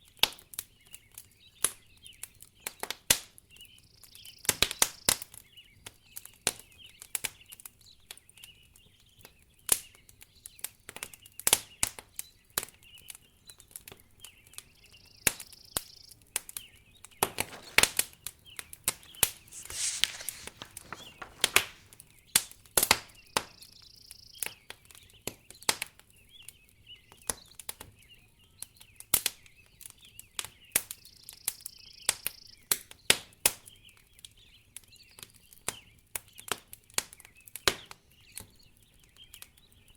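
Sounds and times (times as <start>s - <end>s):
wood fire crackling: 17.4s - 22.6s.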